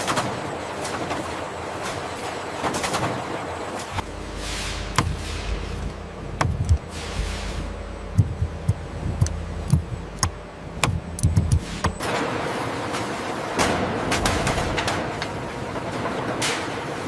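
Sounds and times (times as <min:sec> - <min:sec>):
low thumps: 0:03.9 - 0:12.0
sharp clicks: 0:06.4 - 0:06.9, 0:08.1 - 0:12.0.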